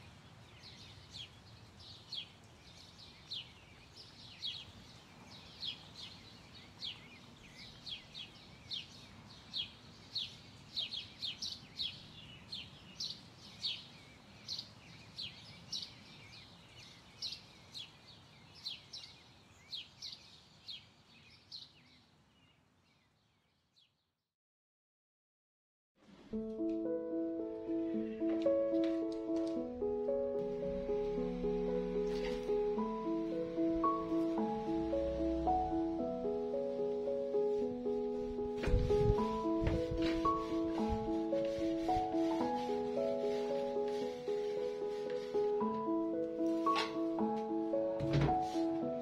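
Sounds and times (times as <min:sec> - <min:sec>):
bird chirping: 0:00.0 - 0:24.1.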